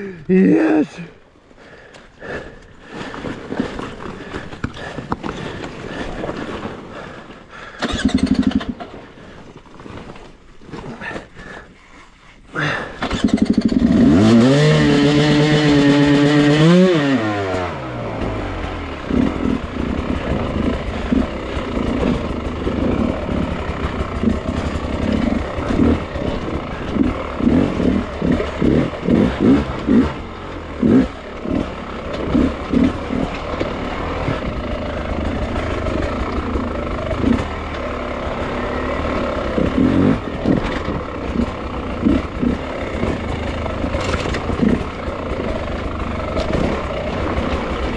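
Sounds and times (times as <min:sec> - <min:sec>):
dirt bike engine revving: 0:07.8 - 0:09.0, 0:12.6 - 0:47.9.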